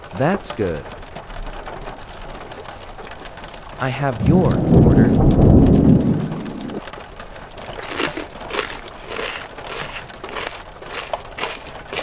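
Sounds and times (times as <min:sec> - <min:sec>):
loud low rumble: 0:03.7 - 0:06.9
crinkling and crunching rustles: 0:07.6 - 0:12.0.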